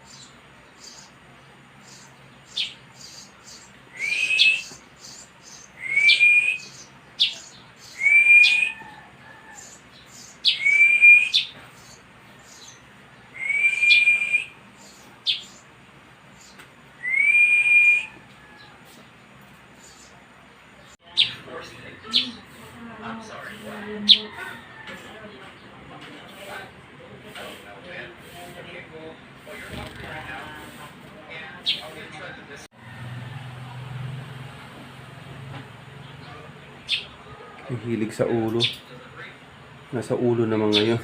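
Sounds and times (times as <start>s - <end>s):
sparrow chirps: 0.0s - 17.2s, 19.7s - 25.7s, 31.6s - 32.0s, 36.0s - 37.2s, 38.6s - 39.0s, 40.6s - 41.0s
rising whistled notes: 17.0s - 18.2s.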